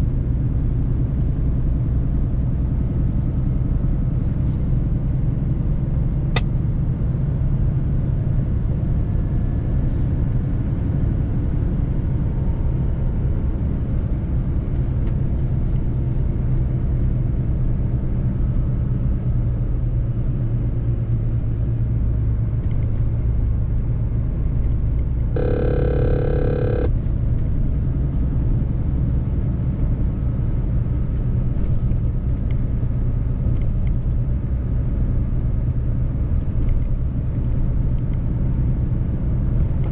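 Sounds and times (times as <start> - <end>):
truck engine and tyre rumble: 0.0 - 25.3, 27.0 - 39.9
pitched tone: 25.4 - 26.9.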